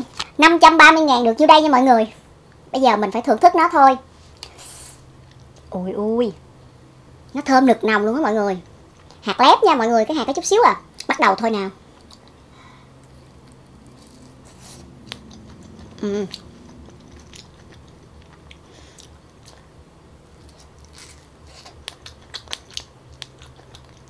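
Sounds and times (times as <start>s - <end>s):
wet chewing and smacking: 12.0s - 12.4s, 13.0s - 24.0s
person humming: 15.9s - 16.5s.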